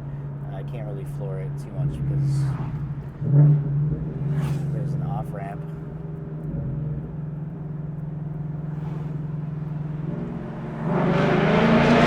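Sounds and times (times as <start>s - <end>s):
car engine and exhaust accelerating: 0.0s - 12.0s.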